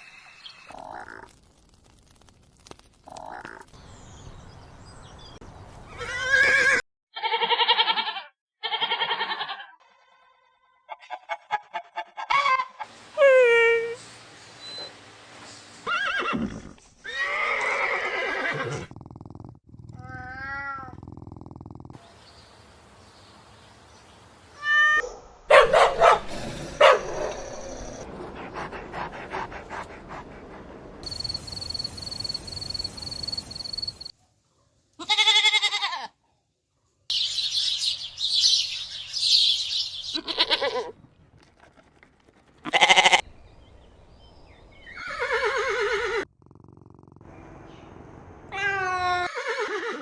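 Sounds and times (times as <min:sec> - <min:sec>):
high chirping: 0:37.1 - 0:40.3.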